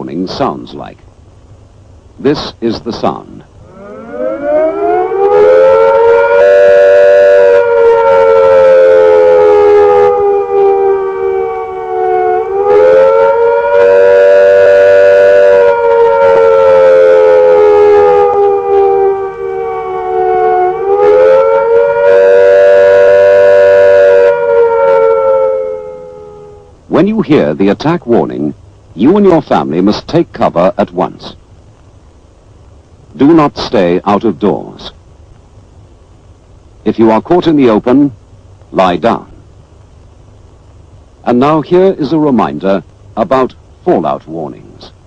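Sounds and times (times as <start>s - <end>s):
civil defence siren wailing: 3.6s - 26.9s.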